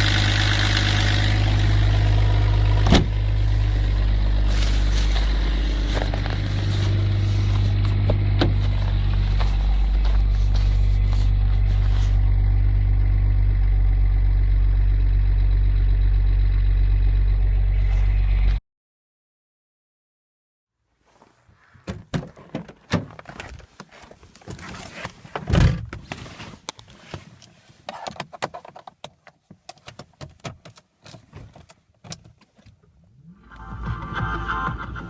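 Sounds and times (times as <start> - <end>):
diesel engine cranking: 0.0 - 18.2
car door thump: 2.8 - 3.2
car interior clicks and rattles: 21.8 - 33.0.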